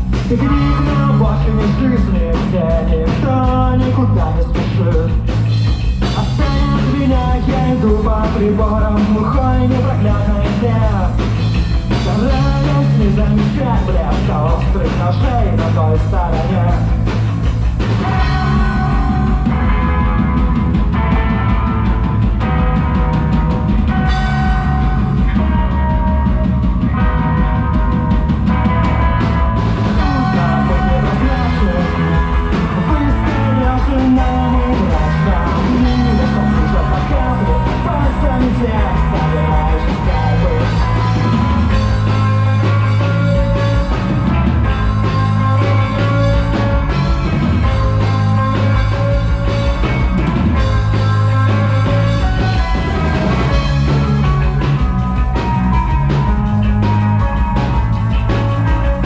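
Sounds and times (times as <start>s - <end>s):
rock band playing live: 0.0s - 59.0s
steady bass notes: 0.0s - 59.0s.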